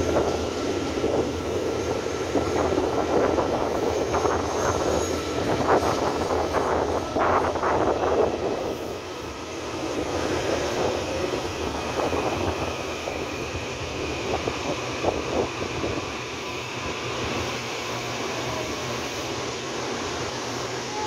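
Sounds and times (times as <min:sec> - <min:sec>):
electric train high whine: 0:00.0 - 0:21.0.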